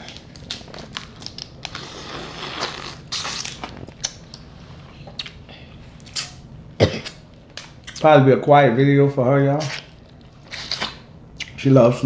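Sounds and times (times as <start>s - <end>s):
crab shells cracking and peeling: 0.0s - 4.5s.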